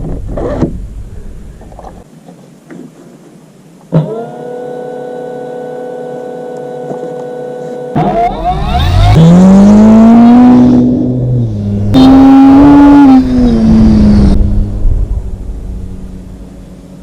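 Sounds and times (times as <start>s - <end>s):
model airplane motor whining: 4.2s - 9.3s.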